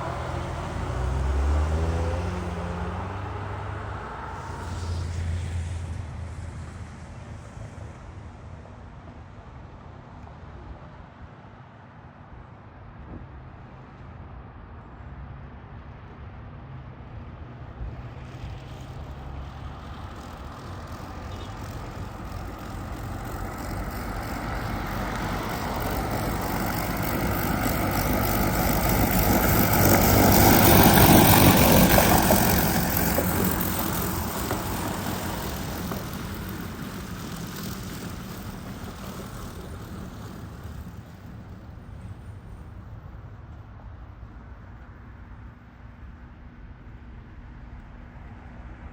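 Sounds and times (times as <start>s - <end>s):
fire truck driving past: 0.0s - 8.4s, 17.2s - 44.3s.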